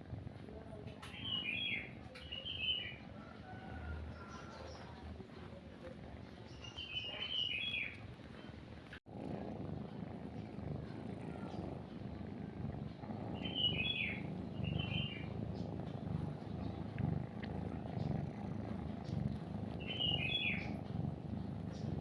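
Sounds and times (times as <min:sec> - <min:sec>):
cat purring: 0:00.0 - 0:22.0
bird chirps: 0:01.1 - 0:03.0, 0:06.5 - 0:07.9, 0:13.4 - 0:15.7, 0:19.8 - 0:20.7.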